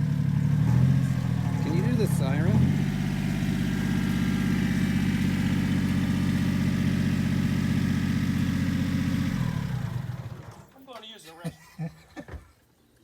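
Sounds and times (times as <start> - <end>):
person speaking: 1.6 - 2.7.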